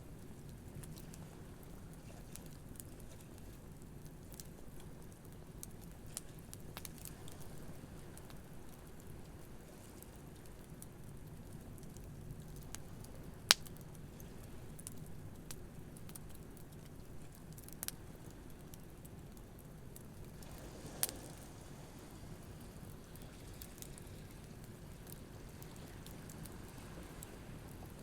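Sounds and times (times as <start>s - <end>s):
campfire crackling and popping: 0.0s - 28.0s
surf washing: 20.2s - 28.0s.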